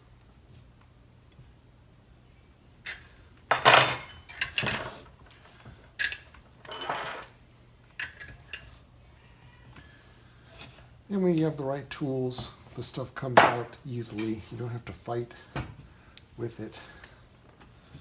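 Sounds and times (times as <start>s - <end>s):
metal tools clinking: 2.9s - 7.4s, 8.0s - 8.7s, 13.4s - 14.5s.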